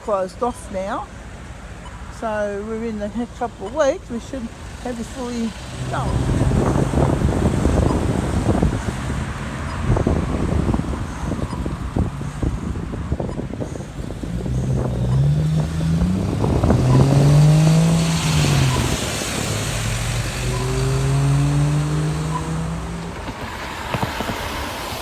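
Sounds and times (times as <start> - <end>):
traffic noise: 0.0 - 25.0
vehicle engine accelerating: 4.5 - 25.0.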